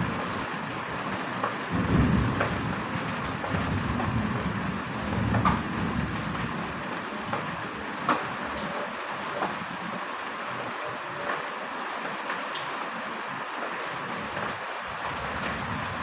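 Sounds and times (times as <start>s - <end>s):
heavy rain: 0.0s - 16.0s
thunder rumble: 1.7s - 6.8s, 15.0s - 16.0s.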